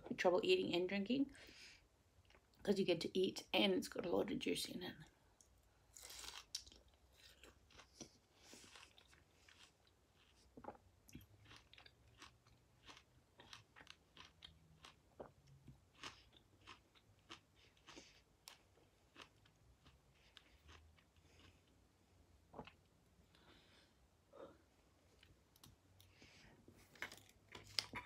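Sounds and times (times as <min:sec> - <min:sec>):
chewing crisp fruit: 0:06.0 - 0:21.8.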